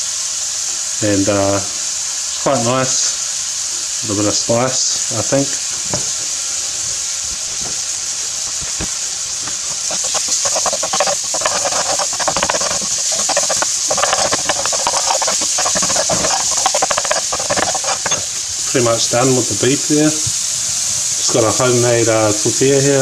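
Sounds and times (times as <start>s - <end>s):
meat sizzling in a frying pan: 0.0s - 23.0s
spatula scraping and stirring: 4.1s - 20.5s.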